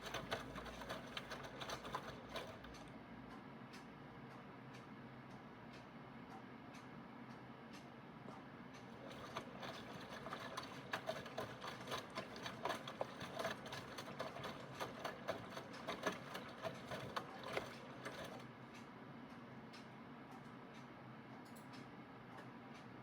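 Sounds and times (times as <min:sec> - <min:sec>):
washing machine motor hum: 0:00.0 - 0:02.9, 0:08.9 - 0:18.7.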